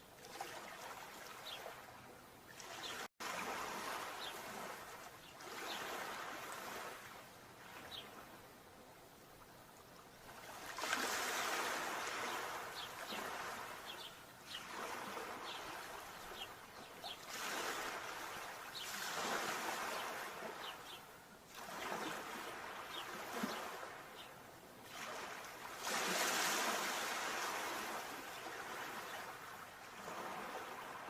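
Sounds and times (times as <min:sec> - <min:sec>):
sea waves breaking: 0:02.5 - 0:08.2, 0:10.2 - 0:31.0.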